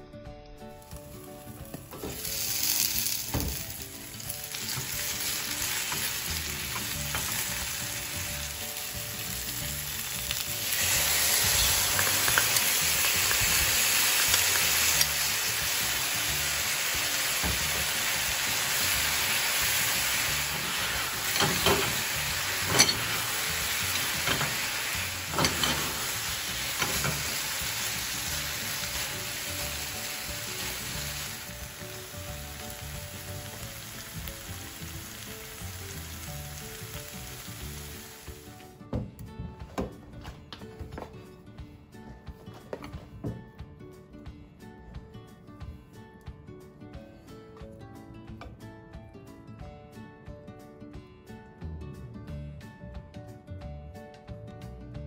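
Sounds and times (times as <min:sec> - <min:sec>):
food sizzling in a frying pan: 0:00.8 - 0:38.6.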